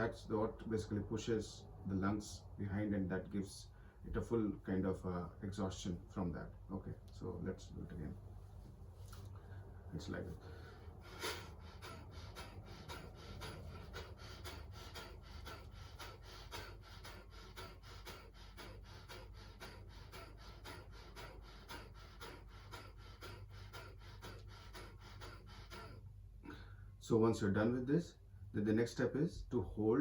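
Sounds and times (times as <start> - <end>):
man exhaling forcefully through nose: 10.5 - 26.8.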